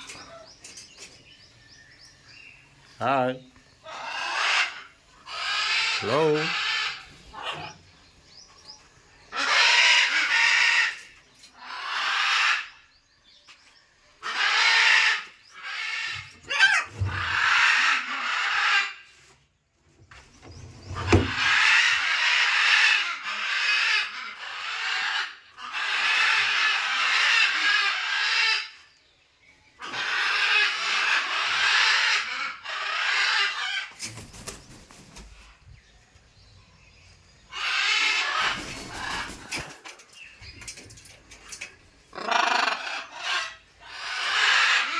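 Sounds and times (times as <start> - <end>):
parrot squawking: 42.1 - 44.9.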